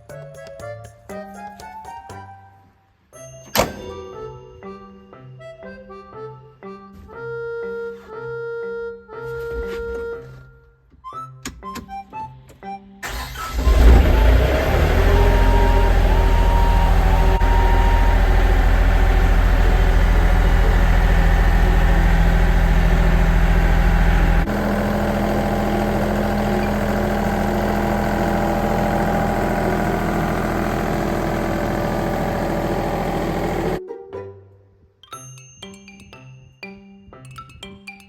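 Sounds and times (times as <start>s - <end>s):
diesel tractor engine idling: 13.0s - 33.8s.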